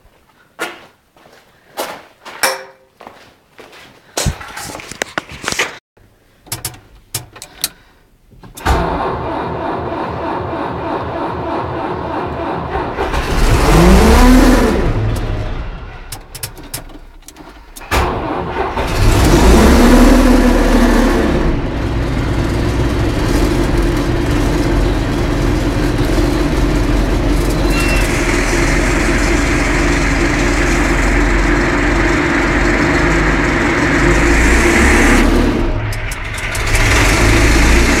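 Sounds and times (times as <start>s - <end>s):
tractor diesel engine revving: 8.6s - 16.1s, 17.8s - 38.0s.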